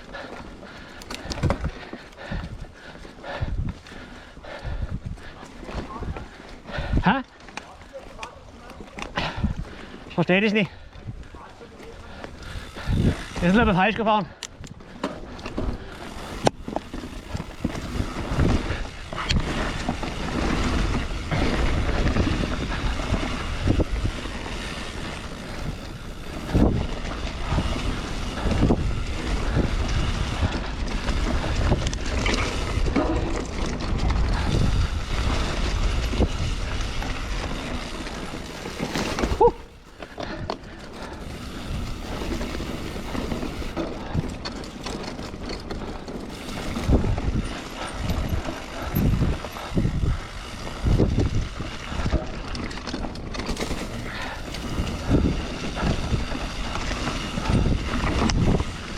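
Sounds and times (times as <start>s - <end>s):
bike rattling and knocking: 0.0s - 58.9s
wind rushing over microphone: 12.4s - 13.9s, 15.7s - 39.6s, 46.3s - 52.8s, 53.5s - 58.9s.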